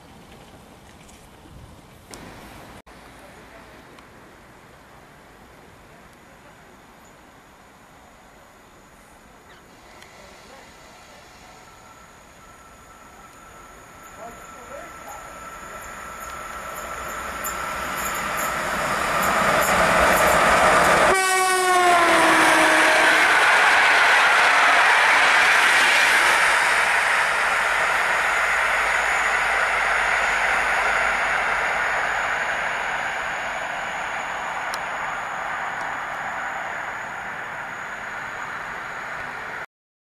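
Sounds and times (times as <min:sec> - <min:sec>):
train coaches clattering past: 0:09.4 - 0:39.6
train horn: 0:21.0 - 0:23.3.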